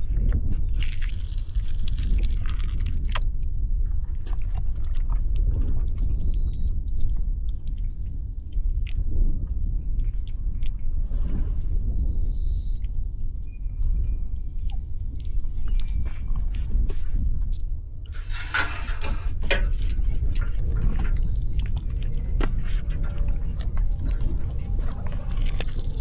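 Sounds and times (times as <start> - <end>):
small clicks: 0.8 - 3.2, 18.2 - 26.0.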